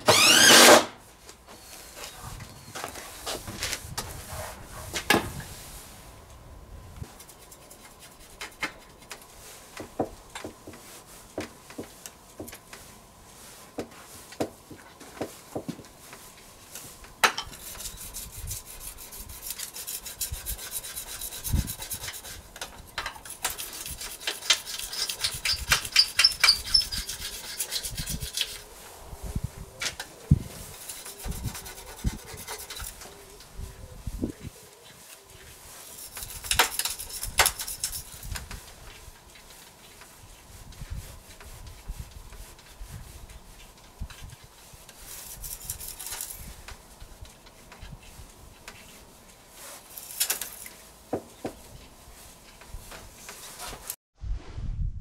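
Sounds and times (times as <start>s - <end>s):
rasping rubbing strokes on wood: 17.5s - 28.8s, 30.5s - 33.2s, 34.9s - 38.3s.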